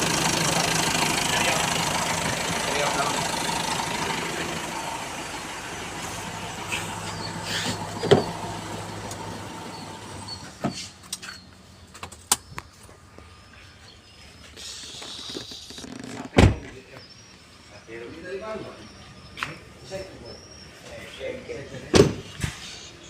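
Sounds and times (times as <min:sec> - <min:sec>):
engine idling: 0:00.0 - 0:15.9.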